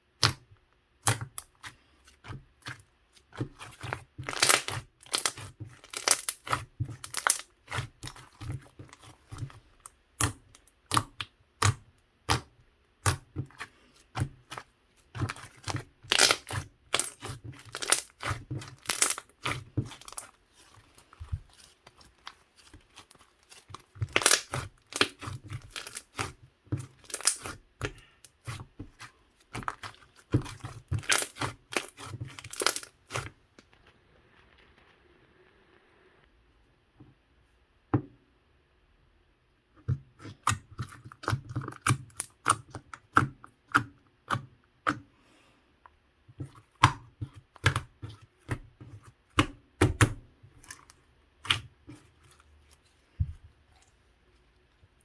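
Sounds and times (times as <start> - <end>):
slime crackling and popping: 2.7 - 9.5, 15.2 - 35.4.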